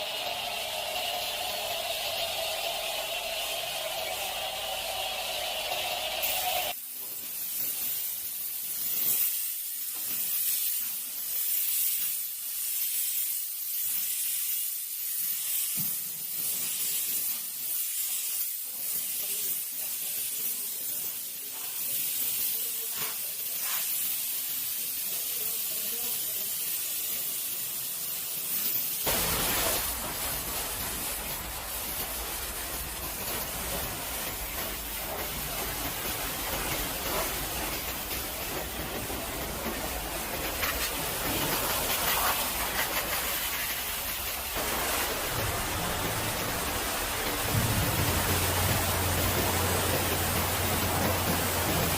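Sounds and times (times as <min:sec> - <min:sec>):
pressure washer spraying: 0:00.0 - 0:51.9
low rumble: 0:44.7 - 0:51.8.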